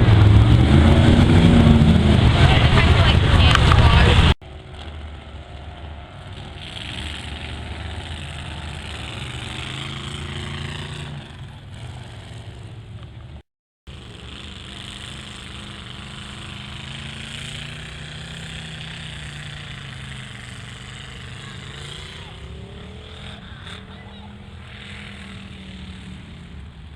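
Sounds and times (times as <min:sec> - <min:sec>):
truck engine running under load: 0:00.0 - 0:26.9.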